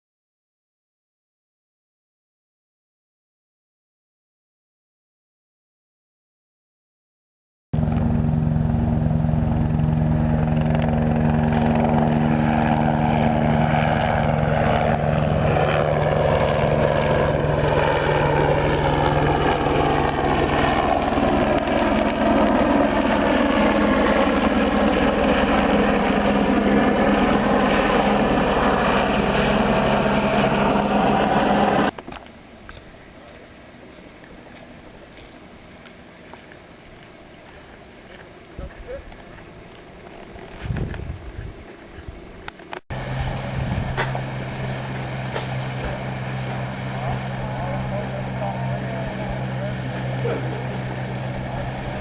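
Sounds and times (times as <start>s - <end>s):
outboard motor running: 7.8s - 31.9s, 42.9s - 52.0s.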